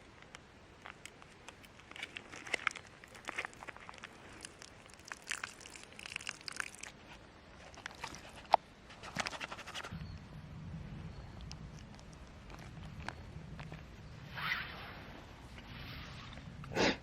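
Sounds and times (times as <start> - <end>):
crunching and rustling handling: 0.0 - 10.1, 11.3 - 14.2
low steady hum: 0.0 - 17.0.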